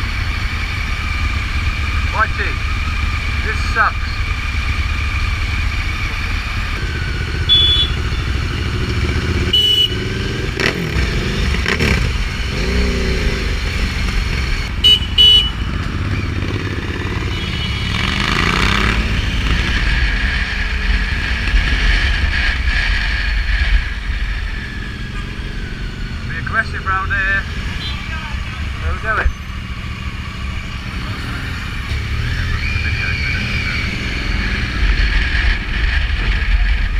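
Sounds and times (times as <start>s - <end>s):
motorcycle engine: 0.0s - 36.9s
short horn beeps: 7.5s - 8.4s, 9.5s - 10.1s, 14.8s - 15.6s.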